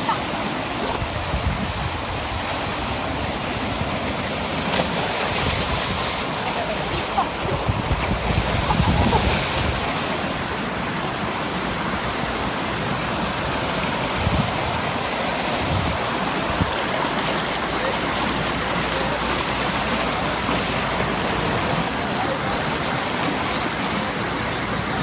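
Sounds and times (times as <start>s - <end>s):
water rushing: 0.0s - 25.0s
wind buffeting microphone: 0.9s - 4.1s, 5.3s - 10.1s, 14.0s - 17.1s.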